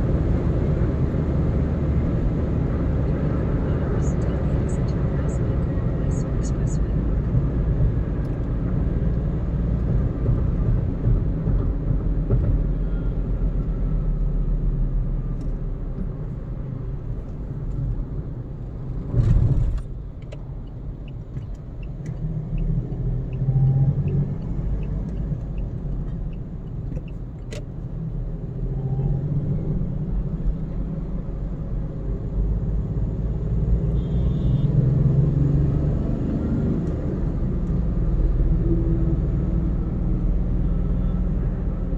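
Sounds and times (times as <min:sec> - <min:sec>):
car road and tyre rumble: 0:00.0 - 0:41.9
soft regular ticking: 0:20.2 - 0:23.4, 0:24.0 - 0:27.8.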